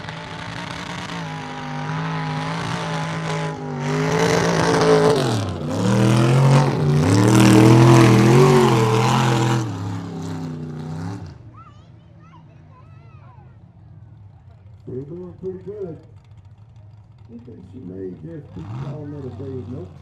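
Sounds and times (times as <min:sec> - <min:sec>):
truck engine revving hard: 0:00.0 - 0:11.5, 0:17.2 - 0:20.0.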